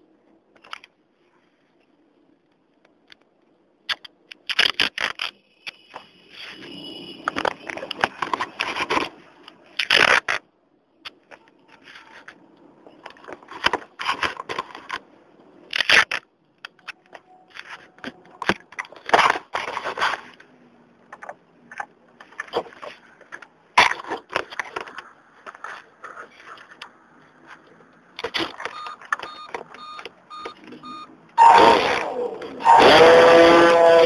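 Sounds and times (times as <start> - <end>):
scraping against microphone: 22.2 - 28.5.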